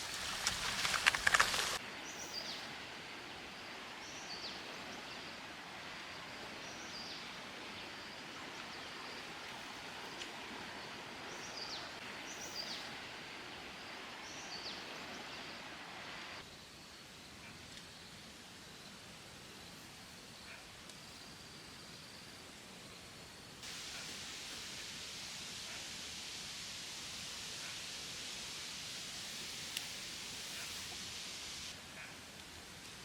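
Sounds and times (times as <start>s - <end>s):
rain hissing: 0.0s - 1.8s, 23.6s - 31.8s.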